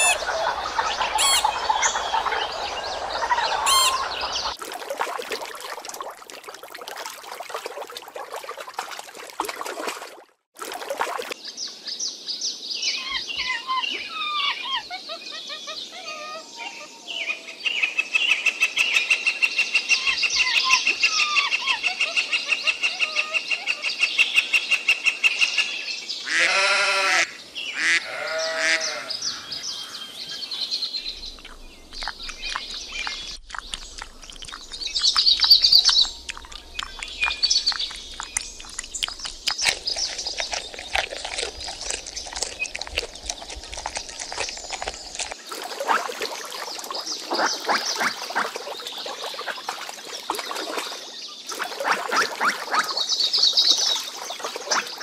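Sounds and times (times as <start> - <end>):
bird chirps: 0.0 - 4.6, 28.9 - 45.2.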